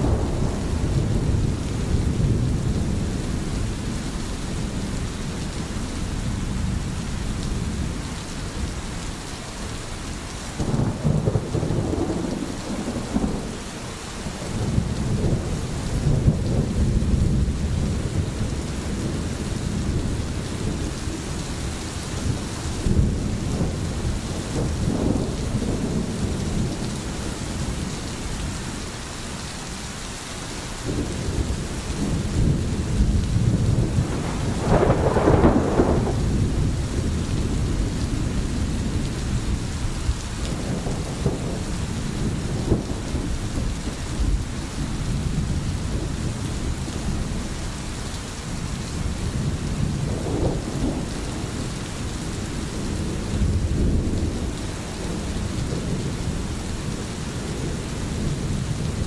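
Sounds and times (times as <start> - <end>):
low rolling thunder: 0.0 - 8.7, 10.5 - 28.7, 30.8 - 47.8, 48.4 - 59.0
steady rain: 0.0 - 59.0.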